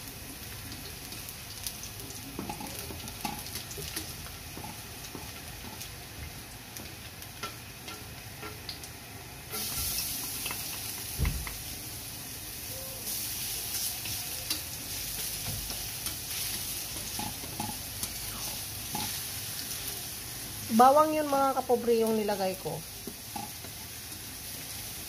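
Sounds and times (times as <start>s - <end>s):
garlic sizzling in hot oil: 0.0s - 25.0s
quieter sizzle of frying onion: 0.0s - 25.0s.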